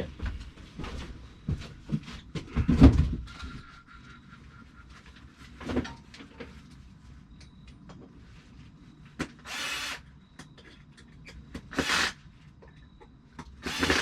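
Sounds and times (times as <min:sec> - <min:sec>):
wood and metal clunks: 0:01.5 - 0:03.3.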